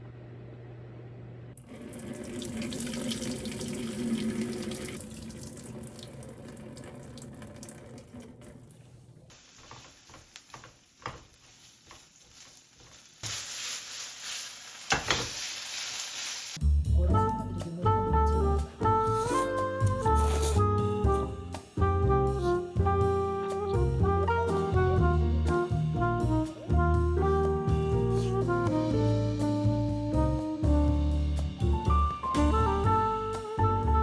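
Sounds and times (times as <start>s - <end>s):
tap water running into sink: 1.6s - 8.8s.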